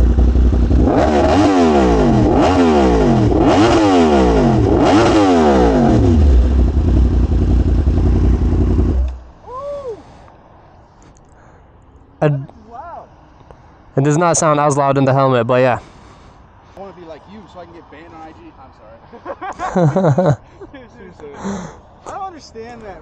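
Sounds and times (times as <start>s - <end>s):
motorcycle engine blipped: 0.0s - 9.2s.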